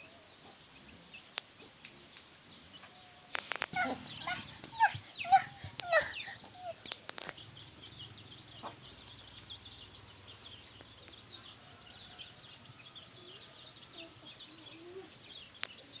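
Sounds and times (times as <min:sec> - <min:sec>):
chorus of short high chirps: 0:03.5 - 0:07.4.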